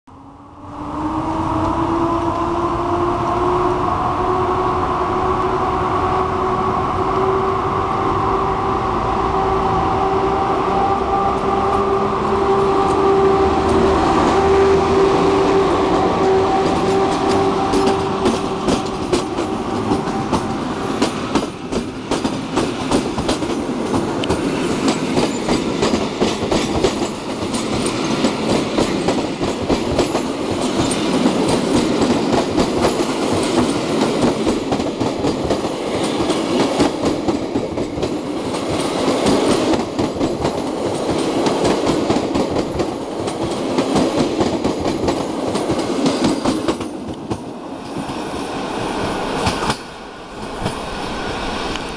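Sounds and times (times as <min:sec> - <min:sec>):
train wheels clattering over joints: 0:16.2 - 0:48.2.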